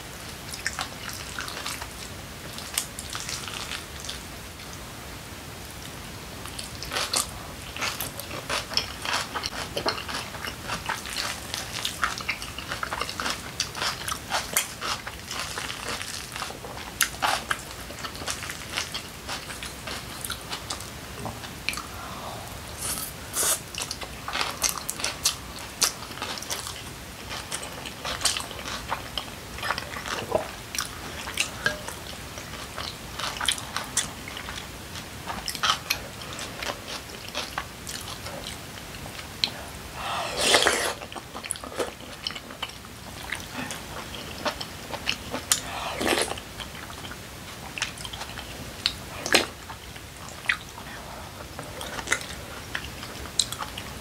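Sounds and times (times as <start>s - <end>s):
chewing with wet mouth clicks: 6.6s - 20.9s, 40.6s - 50.8s, 51.6s - 53.9s
slurping from a spoon: 22.8s - 23.6s, 40.0s - 41.1s, 45.5s - 46.4s.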